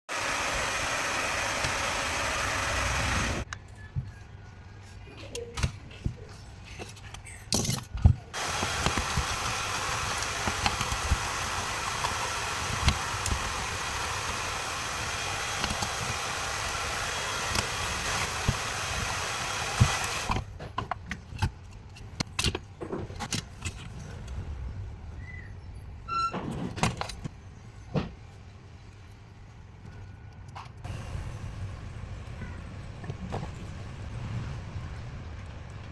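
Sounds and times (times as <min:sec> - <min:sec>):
machine blowing air: 0:00.1 - 0:03.5, 0:08.4 - 0:20.4, 0:30.9 - 0:32.3.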